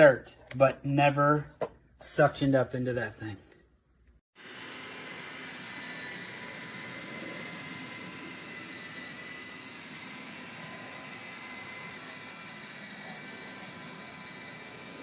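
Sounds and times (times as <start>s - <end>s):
robot vacuum whirring: 4.4s - 15.0s.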